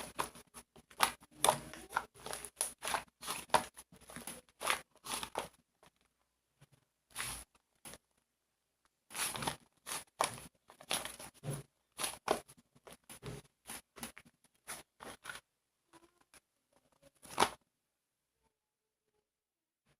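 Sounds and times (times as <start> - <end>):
slime crackling and popping: 0.0 - 5.9, 7.1 - 8.0, 9.1 - 12.6.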